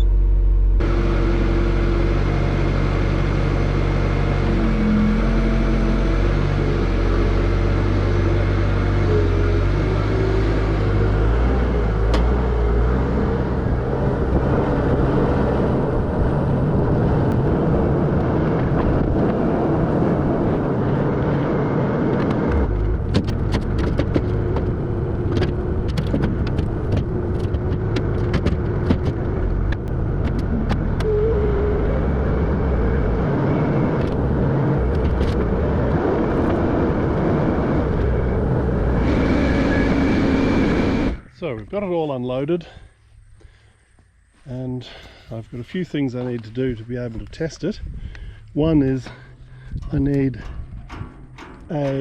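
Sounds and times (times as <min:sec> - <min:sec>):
vehicle engine running: 0:00.0 - 0:52.0
sharp clicks and knocks: 0:22.2 - 0:31.1, 0:49.8 - 0:52.0.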